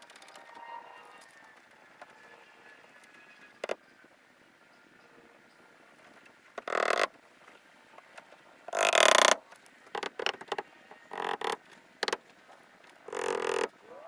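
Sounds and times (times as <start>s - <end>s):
frogs croaking: 13.0s - 14.0s.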